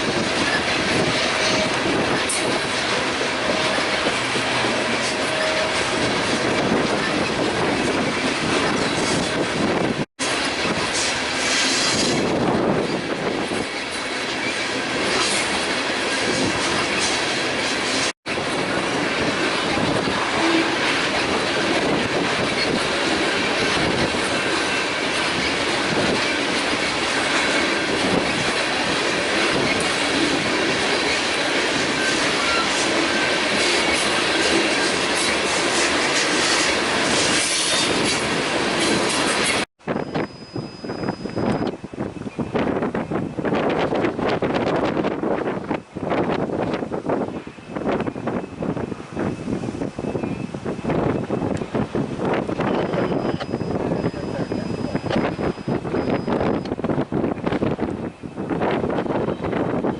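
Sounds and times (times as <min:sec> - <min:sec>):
freight train rumble and rattle: 0:00.0 - 0:59.9
wheel squeal: 0:00.4 - 0:06.4, 0:31.0 - 0:38.2, 0:38.8 - 0:42.5, 0:52.5 - 0:56.8
train wheels clacking over rail joints: 0:18.7 - 0:39.7.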